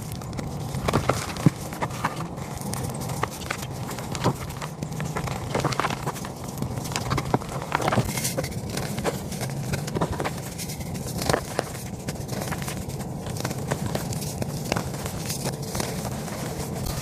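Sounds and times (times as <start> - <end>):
chalk being crushed: 0.0 - 17.0.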